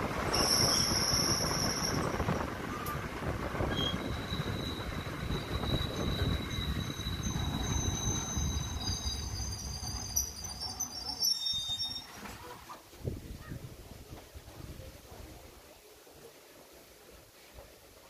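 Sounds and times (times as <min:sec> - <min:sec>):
train wheels rumbling on track: 0:00.0 - 0:12.4
wheels squealing: 0:00.2 - 0:12.8.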